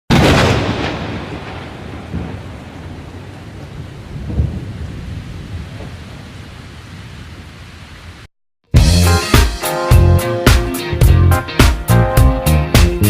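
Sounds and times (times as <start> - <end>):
rolling thunder: 0.1 - 7.6.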